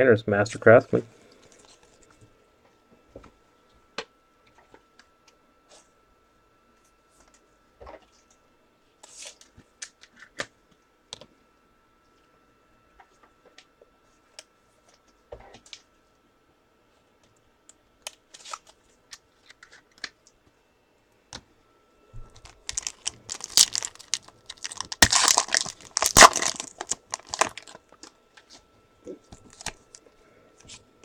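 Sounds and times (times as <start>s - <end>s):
wrapper crinkling and tearing: 22.4s - 27.8s.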